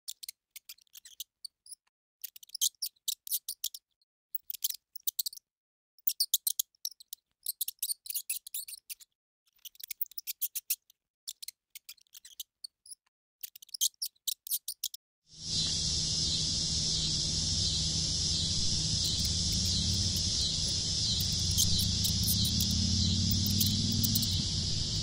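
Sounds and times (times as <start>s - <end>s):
insects chirping: 15.4s - 25.0s.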